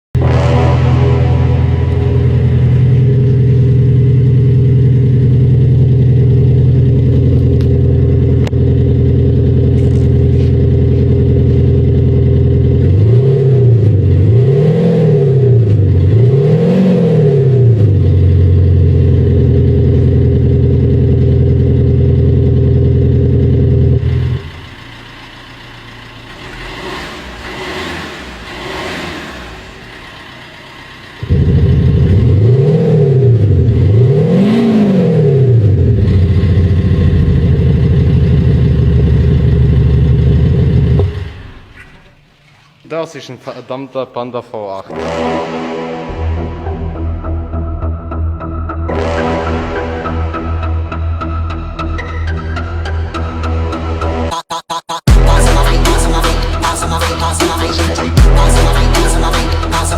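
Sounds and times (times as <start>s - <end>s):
deep engine exhaust revving: 0.1s - 42.0s, 44.9s - 52.1s, 55.1s - 59.9s
quiet engine light revs: 24.1s - 37.4s.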